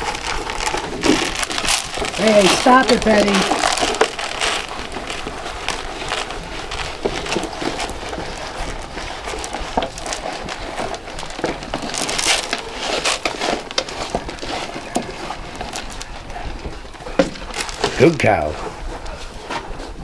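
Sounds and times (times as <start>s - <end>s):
hay rustling and crackling: 0.0s - 16.7s, 17.4s - 18.4s.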